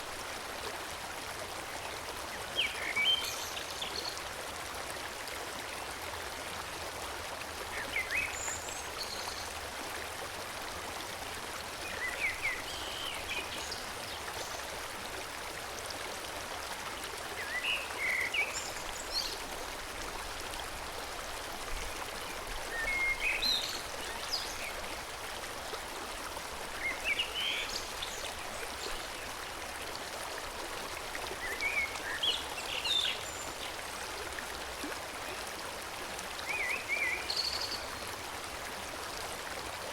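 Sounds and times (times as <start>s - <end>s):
forest stream flowing: 0.0s - 39.9s.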